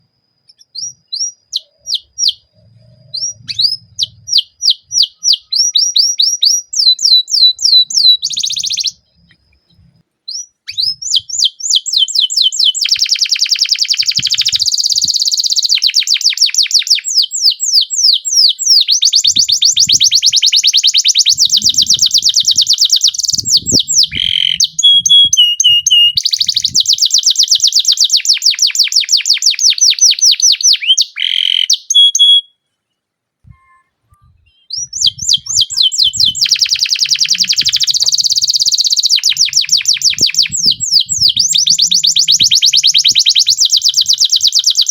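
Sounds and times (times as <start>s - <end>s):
canary singing trills: 0.4s - 32.9s, 33.5s - 44.9s.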